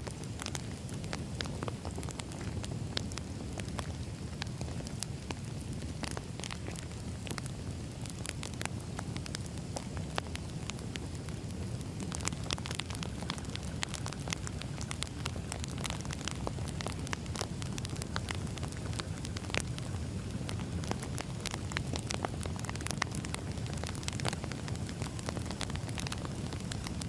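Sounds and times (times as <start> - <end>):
firewood crackling and popping: 0.0 - 27.0
low rumble of flames: 0.0 - 27.0.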